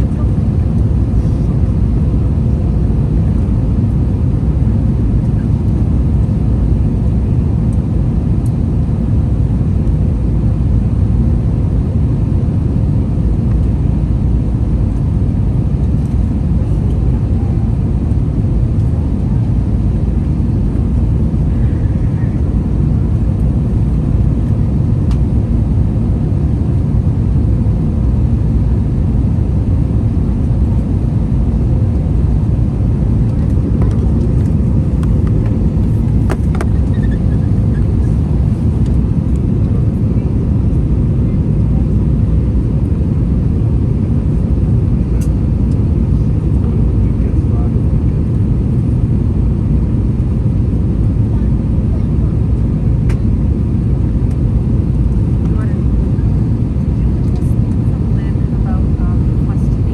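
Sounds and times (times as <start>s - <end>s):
aircraft engine drone: 0.0s - 59.8s
cabin airflow noise: 32.7s - 39.6s.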